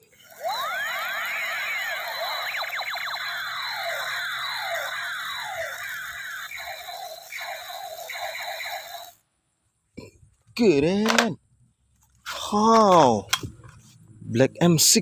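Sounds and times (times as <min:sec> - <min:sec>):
toy laser gun zaps: 0:00.0 - 0:09.2.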